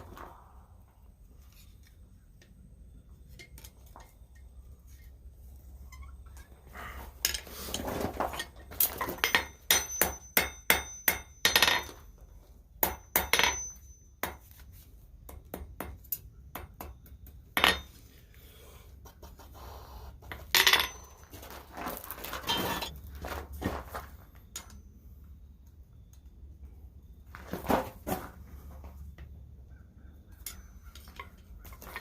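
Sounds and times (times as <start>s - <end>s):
hammer striking steel on anvil: 9.2s - 12.0s, 12.8s - 14.5s.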